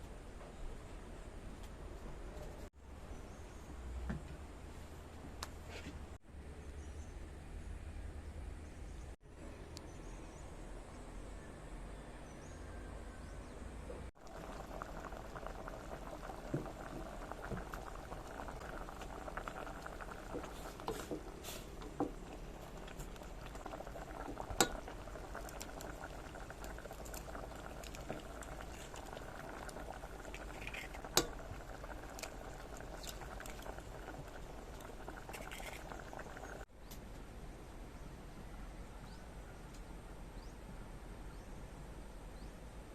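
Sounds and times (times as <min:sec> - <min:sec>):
soup bubbling in a pot: 0:14.1 - 0:36.7.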